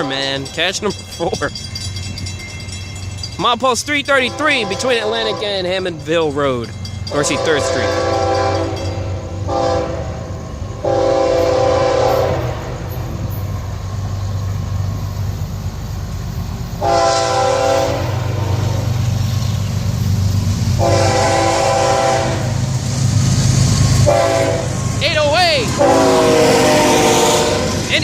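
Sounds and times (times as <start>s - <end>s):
train engines rumbling: 0.0s - 28.0s
locomotive air horn blasts: 4.3s - 5.5s, 7.3s - 10.2s, 10.8s - 12.8s, 16.8s - 18.7s, 20.8s - 22.6s, 24.0s - 24.7s, 25.7s - 27.8s.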